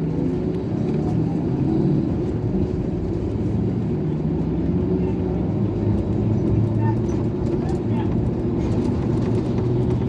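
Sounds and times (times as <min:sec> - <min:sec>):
bus engine rumbling: 0:00.0 - 0:10.0.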